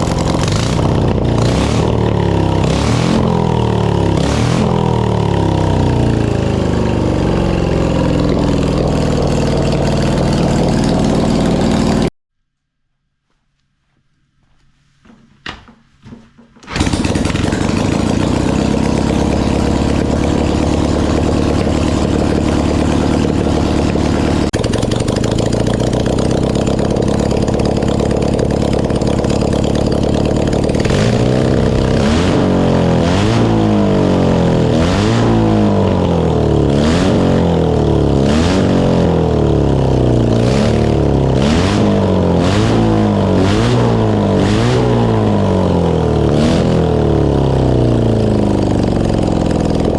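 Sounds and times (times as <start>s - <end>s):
motorcycle engine starting and revving: 0.0s - 12.1s, 16.6s - 49.9s.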